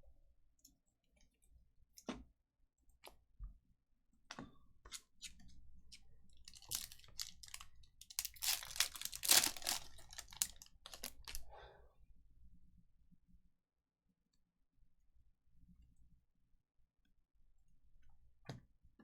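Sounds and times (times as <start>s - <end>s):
foil wrapper tearing and crinkling: 6.5s - 11.4s.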